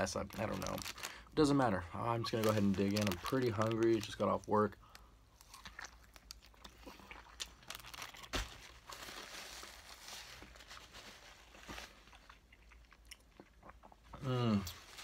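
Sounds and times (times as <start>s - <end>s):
person chewing: 5.0s - 8.3s, 12.0s - 14.9s.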